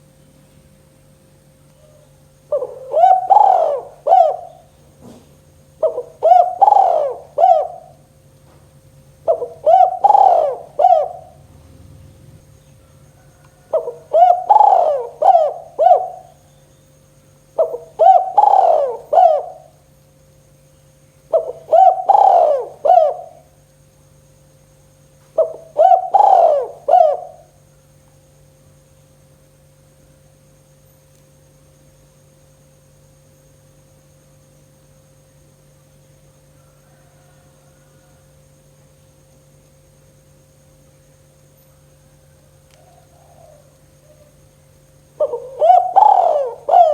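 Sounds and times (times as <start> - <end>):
faint steady hum: 0.0 - 46.9
dove cooing: 1.8 - 8.2, 8.8 - 16.6, 17.6 - 19.9, 21.3 - 23.6, 25.3 - 27.6, 42.3 - 44.5, 45.1 - 46.9.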